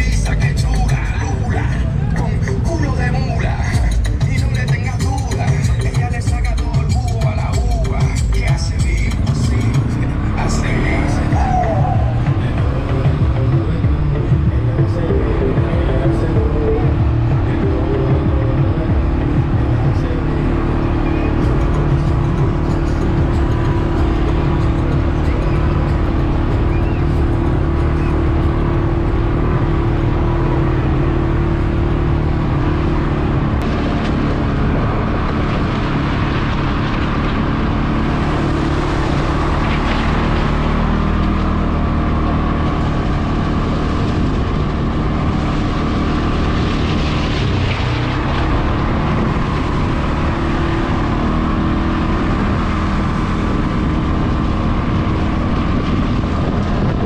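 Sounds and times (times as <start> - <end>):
quad bike engine running: 0.0 - 57.0
rushing noise: 7.4 - 57.0.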